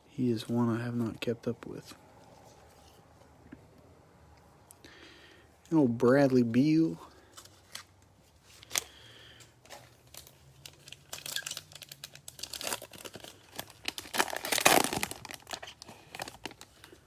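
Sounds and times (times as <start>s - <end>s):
plastic wrapper crinkling and tearing: 7.2s - 9.0s, 9.6s - 17.0s.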